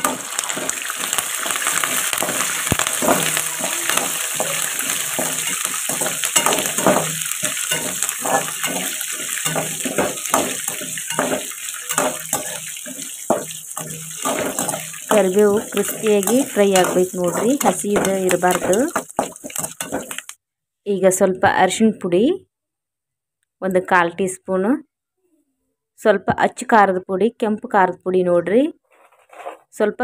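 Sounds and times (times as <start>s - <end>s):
food sizzling in hot oil: 0.0s - 20.4s
metal spoon scraping a pan: 0.0s - 20.4s.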